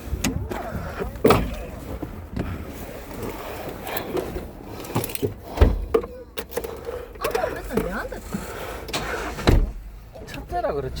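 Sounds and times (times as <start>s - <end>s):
vehicle door knocks and clunks: 0.1s - 2.6s, 5.0s - 6.6s, 9.4s - 9.9s
heavy door thud: 9.4s - 9.8s.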